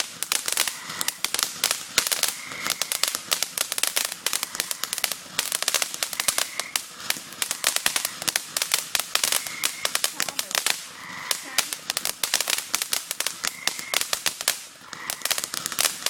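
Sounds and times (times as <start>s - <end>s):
fireworks crackling: 0.0s - 16.0s.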